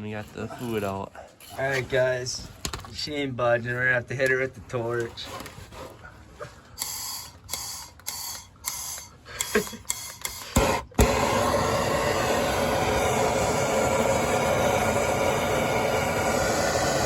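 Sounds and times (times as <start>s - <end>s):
gas torch hissing bursts: 6.8s - 17.0s
gas torch igniting pop: 6.8s - 17.0s
torch flame steady hiss: 6.8s - 17.0s
torch igniter clicks: 6.8s - 17.0s.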